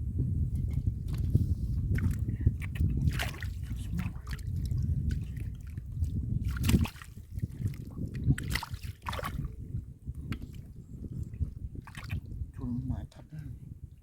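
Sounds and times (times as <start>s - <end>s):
steady low rumble: 0.0s - 8.4s
shallow water sloshing: 0.6s - 12.6s
sharp water splash: 3.0s - 4.4s, 6.4s - 7.7s, 8.3s - 9.5s.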